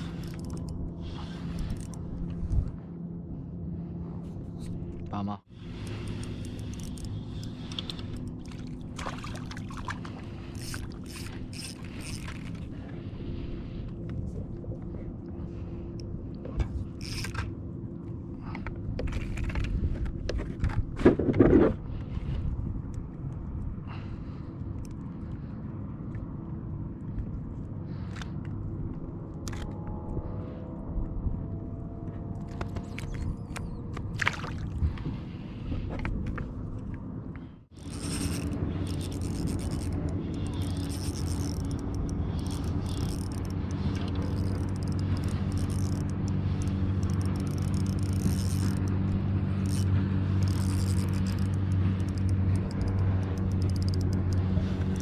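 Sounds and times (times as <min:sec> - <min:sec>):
low rumble of water and hull: 0:00.0 - 0:55.0
gear knocking and clicking: 0:35.9 - 0:55.0.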